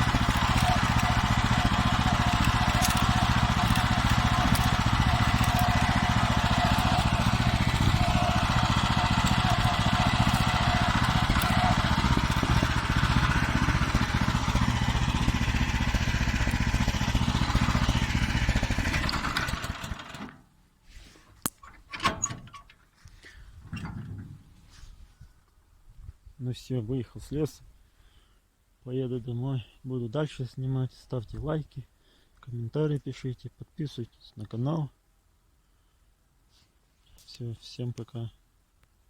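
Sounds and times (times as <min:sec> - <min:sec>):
sharp clicks and knocks: 0:00.0 - 0:15.1
tractor engine running: 0:00.0 - 0:20.3.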